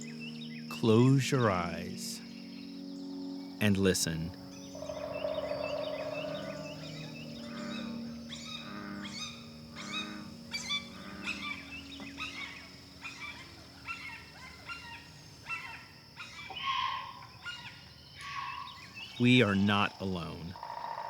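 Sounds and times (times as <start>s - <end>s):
steady high-pitched hum: 0.0s - 15.4s
birds chirping: 0.0s - 21.0s.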